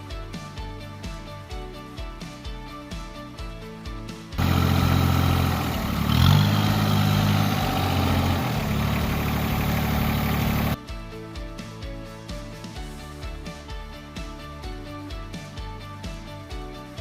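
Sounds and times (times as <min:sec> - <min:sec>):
background music: 0:00.0 - 0:17.0
tractor engine revving: 0:04.4 - 0:10.8.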